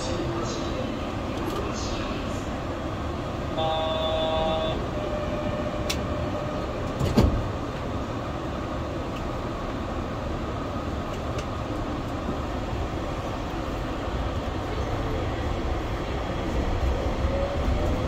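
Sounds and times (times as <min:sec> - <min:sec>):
train running noise on board: 0:00.0 - 0:18.0
brief tone: 0:03.6 - 0:06.9.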